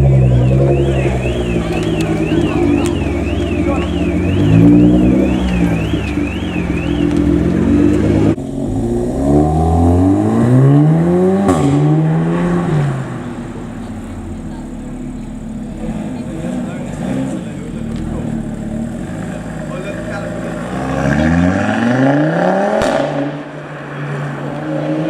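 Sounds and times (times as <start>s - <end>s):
warbling car alarm: 0.0s - 7.7s
exhaust crack: 0.0s - 24.8s
car engine revving: 0.0s - 25.0s.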